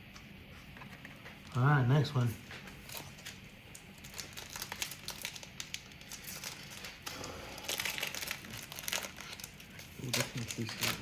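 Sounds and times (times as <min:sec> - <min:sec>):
wrapper tearing and crinkling: 0:02.8 - 0:11.0.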